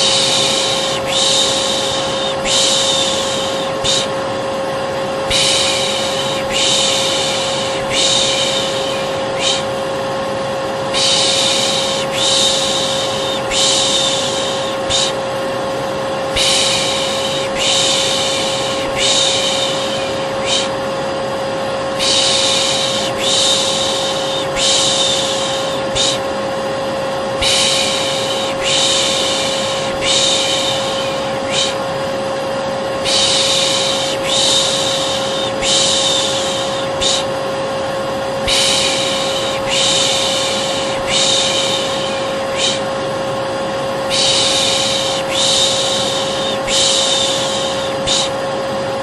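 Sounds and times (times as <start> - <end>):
person shushing: 0.0 - 4.2, 5.3 - 9.8, 10.9 - 15.3, 16.3 - 20.9, 22.0 - 26.3, 27.4 - 31.9, 33.0 - 37.4, 38.4 - 43.0, 44.0 - 48.4
vacuum cleaner running: 0.0 - 49.0.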